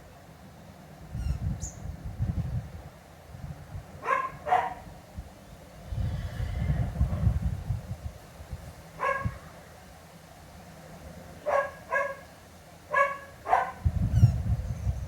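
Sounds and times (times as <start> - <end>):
dog barking: 4.0 - 4.9, 9.0 - 9.4, 11.4 - 12.3, 12.9 - 13.9.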